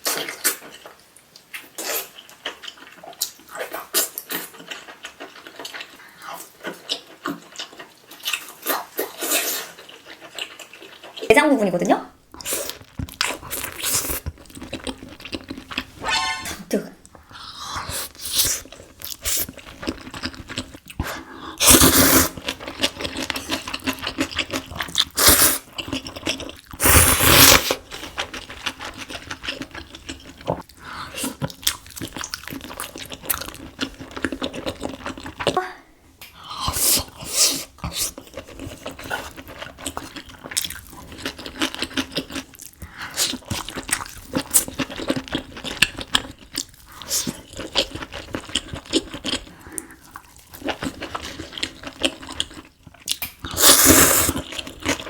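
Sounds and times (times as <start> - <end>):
person chewing and crunching: 0.0 - 11.3, 12.3 - 16.4, 17.4 - 35.6, 36.3 - 55.0.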